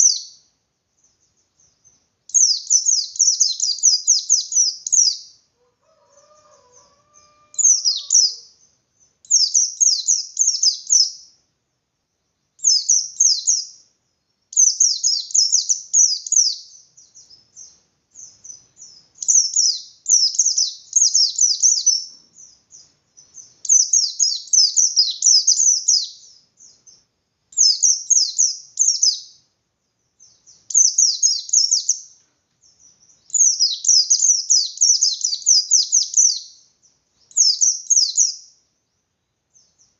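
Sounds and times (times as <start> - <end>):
bird singing high chirps: 0.0 - 11.4, 12.6 - 39.9.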